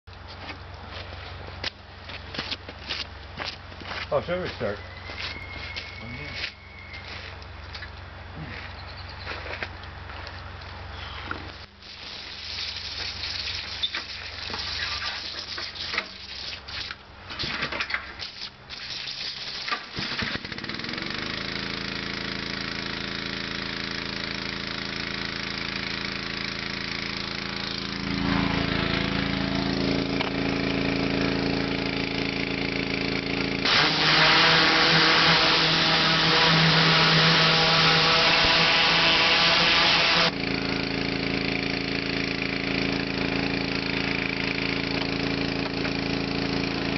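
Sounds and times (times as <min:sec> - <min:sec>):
pressure washer engine running: 0:18.7 - 0:46.9
high-pressure spray jet hissing: 0:33.6 - 0:40.3.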